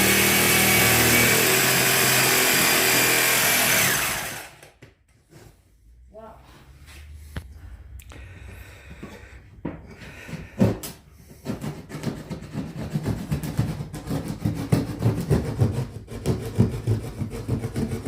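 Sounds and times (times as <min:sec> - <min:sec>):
scraping on wood: 0:10.0 - 0:18.0.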